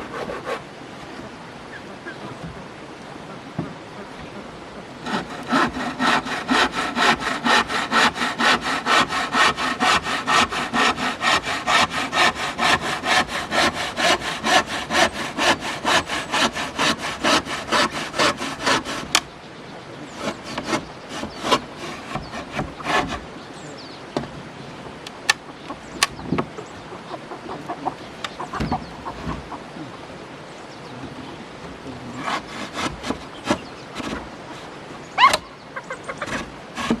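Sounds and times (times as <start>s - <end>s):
handsaw cutting wood: 0.0s - 0.6s, 5.0s - 19.3s, 20.1s - 23.3s, 32.1s - 35.4s, 36.2s - 37.0s.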